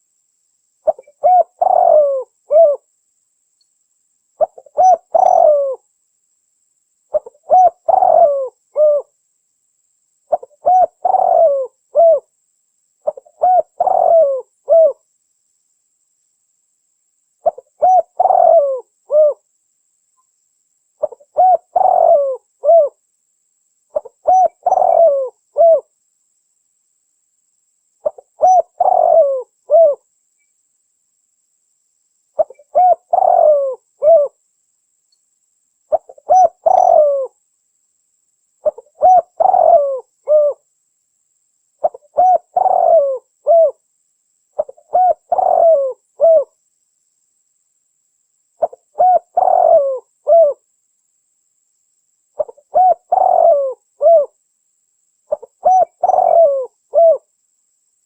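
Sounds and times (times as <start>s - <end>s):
dove cooing: 0.8s - 2.8s, 4.4s - 5.8s, 7.1s - 9.1s, 10.3s - 12.3s, 13.0s - 15.0s, 17.4s - 19.4s, 21.0s - 23.0s, 23.9s - 25.9s, 28.0s - 30.0s, 32.4s - 34.4s, 35.9s - 37.4s, 38.6s - 40.6s, 41.8s - 43.8s, 44.6s - 46.6s, 48.6s - 50.6s, 52.4s - 54.4s, 55.3s - 57.3s.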